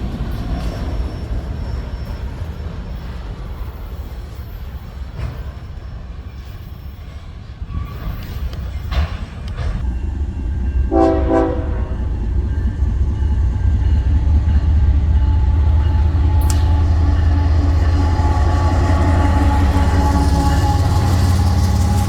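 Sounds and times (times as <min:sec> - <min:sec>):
passing train rumble: 0:00.0 - 0:22.0
train horn blast: 0:10.9 - 0:12.1, 0:15.0 - 0:22.0.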